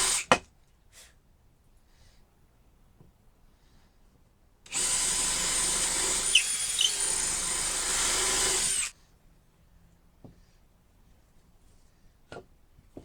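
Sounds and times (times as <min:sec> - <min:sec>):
power drill whining: 0:04.7 - 0:08.9.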